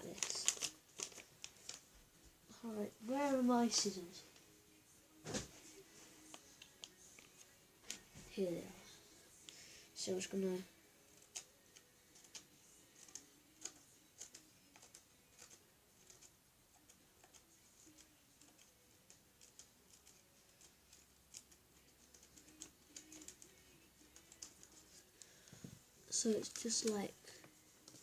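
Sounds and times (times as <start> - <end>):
scissors snipping paper: 0.0 - 1.8, 11.2 - 25.3, 26.2 - 27.1.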